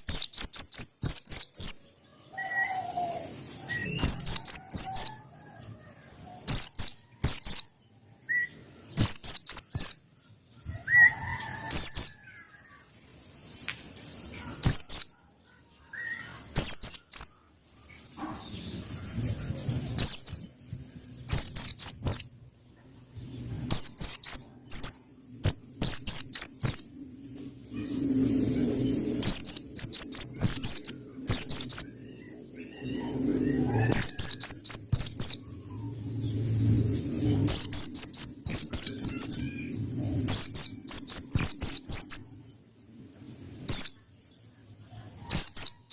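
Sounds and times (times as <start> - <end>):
bird high sharp chirps: 0.0 - 1.8, 2.4 - 5.3, 6.4 - 7.7, 8.3 - 10.0, 10.6 - 15.2, 16.0 - 22.3, 23.7 - 35.8, 37.0 - 42.3, 43.6 - 44.0, 45.3 - 45.9.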